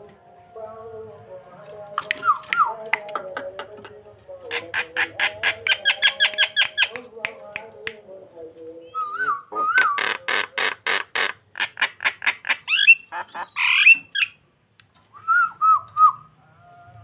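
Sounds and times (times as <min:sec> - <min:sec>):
starling chattering and whistling: 0:04.5 - 0:07.0, 0:11.6 - 0:14.4.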